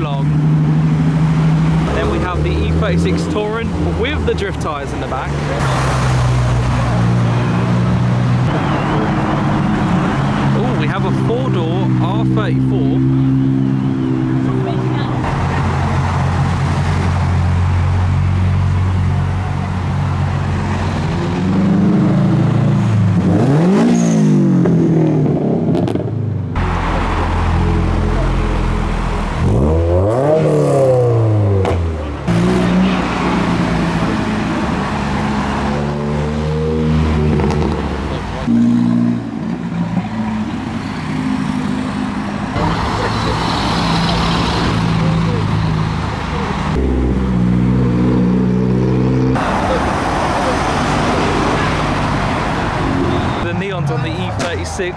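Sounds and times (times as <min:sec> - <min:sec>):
car engine droning and revving: 0:00.0 - 0:54.9.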